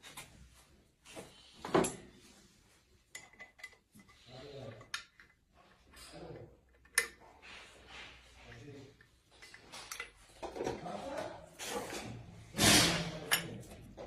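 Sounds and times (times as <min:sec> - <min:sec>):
metal tools clinking and knocking: 0:01.6 - 0:02.1, 0:03.1 - 0:07.2, 0:08.4 - 0:11.0, 0:11.9 - 0:14.0.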